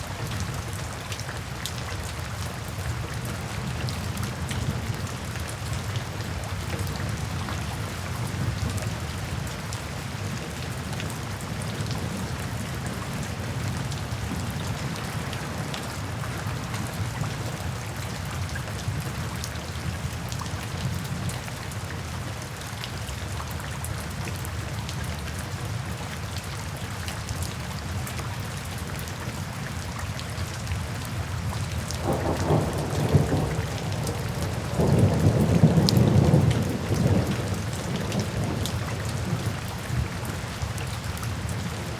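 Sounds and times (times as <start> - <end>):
steady rain falling: 0.0 - 41.9
low rumble of thunder: 31.9 - 41.9.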